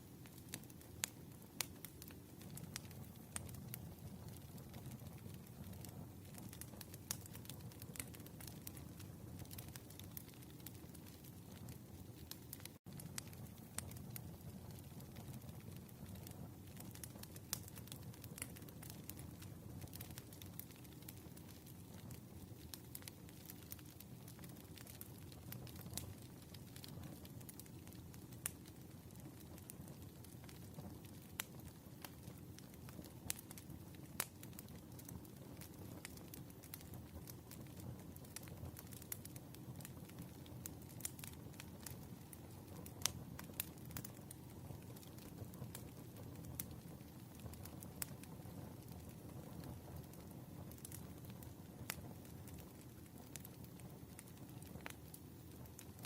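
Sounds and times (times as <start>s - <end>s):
wood fire burning: 0.0s - 56.0s
logs crackling and popping: 0.2s - 56.0s.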